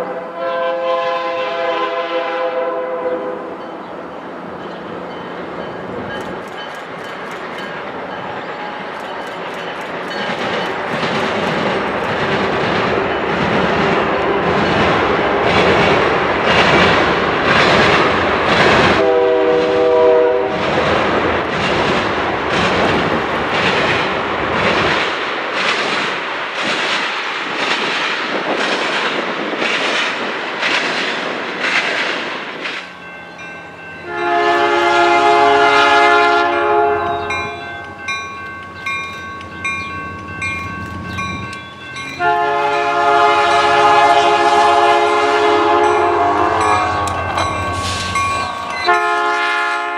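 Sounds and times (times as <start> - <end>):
locomotive air horn chord: 0.0 - 3.6, 19.0 - 20.6, 34.0 - 37.6, 42.2 - 49.9
train wheels clattering: 4.4 - 49.9.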